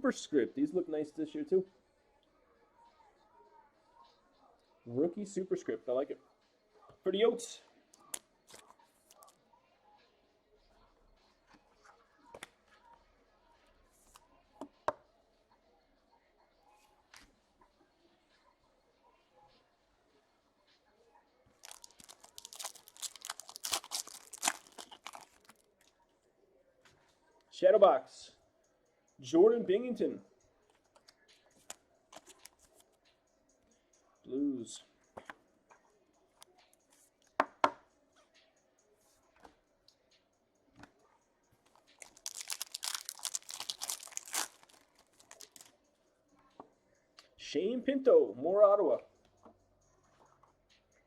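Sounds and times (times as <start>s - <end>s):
wrapper being torn and crinkled: 21.6s - 25.6s, 41.9s - 45.7s.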